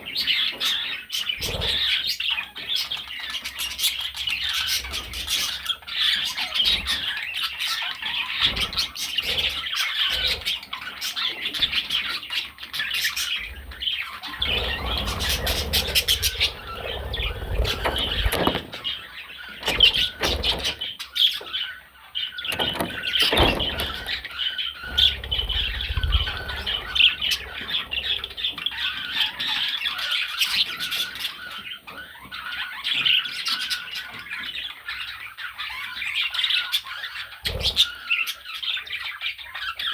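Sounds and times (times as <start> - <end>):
low rumbling thumps: 22.5 - 28.5.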